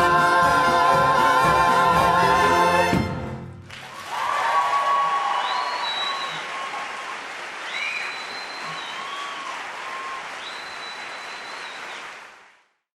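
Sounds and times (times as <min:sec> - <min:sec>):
audience applauding: 0:03.6 - 0:12.8
high-pitched cheers: 0:03.9 - 0:12.0.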